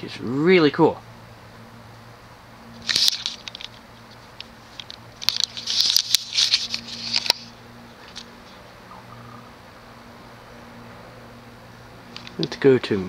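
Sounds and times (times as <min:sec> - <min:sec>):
ceiling fan motor hum: 0:00.0 - 0:13.0
rustling crackling clicks: 0:02.7 - 0:08.6, 0:12.1 - 0:12.6.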